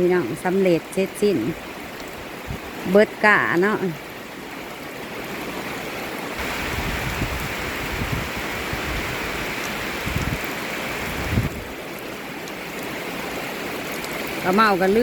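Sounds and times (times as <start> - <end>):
rain falling steadily: 0.0 - 15.0
wind rumbling on microphone: 1.4 - 3.3, 6.3 - 15.0.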